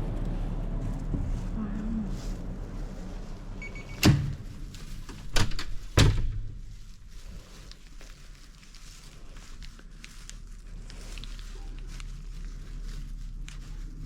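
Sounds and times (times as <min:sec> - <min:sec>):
faint short beep: 0:03.6 - 0:04.0.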